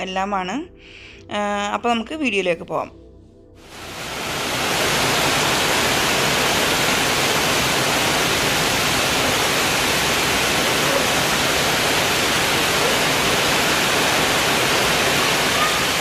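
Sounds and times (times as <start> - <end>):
heavy rain on paving and foliage: 3.7 - 16.0.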